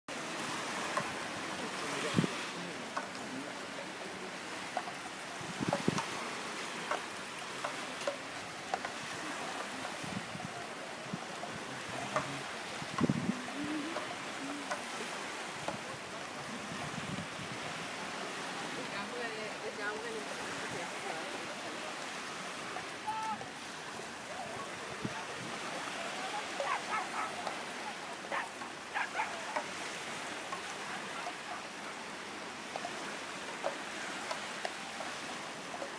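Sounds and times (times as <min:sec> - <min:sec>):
sea surf: 0:00.1 - 0:35.9
distant calls: 0:21.2 - 0:35.9.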